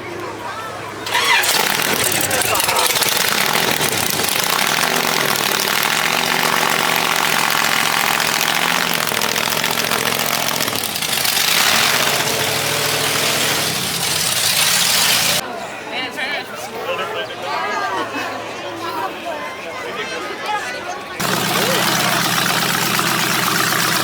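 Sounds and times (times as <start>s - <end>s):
car engine idling: 0.9s - 15.4s, 21.2s - 24.0s.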